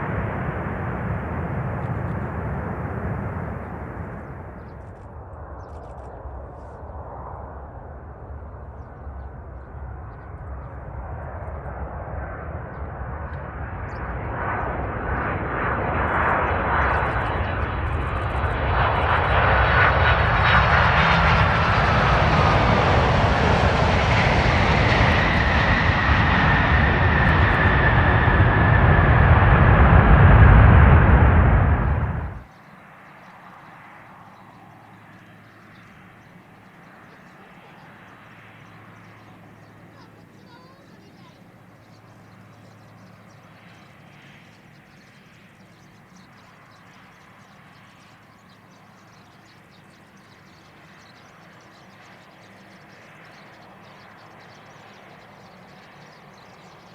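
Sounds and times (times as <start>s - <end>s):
deep rumble: 0.0s - 14.3s, 20.1s - 32.5s
airliner jet engines passing: 0.0s - 56.9s.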